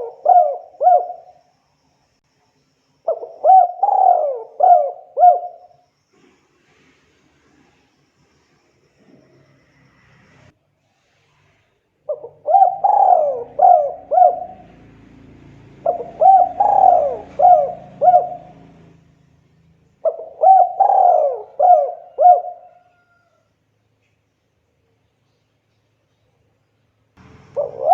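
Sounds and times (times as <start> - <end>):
dove cooing: 0.0 - 1.4, 3.1 - 5.8, 12.1 - 19.0, 20.0 - 23.3, 27.2 - 27.9.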